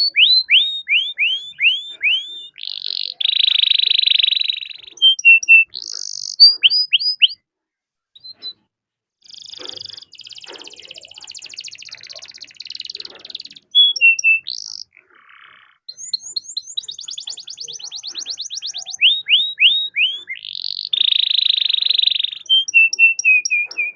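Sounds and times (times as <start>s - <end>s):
canary singing: 0.0s - 7.4s, 8.2s - 8.6s, 9.2s - 23.9s.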